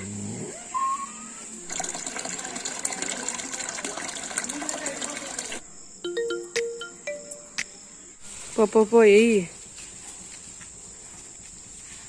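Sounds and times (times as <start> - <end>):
water gushing and splashing: 1.7 - 5.6
rising chirp: 6.0 - 8.2.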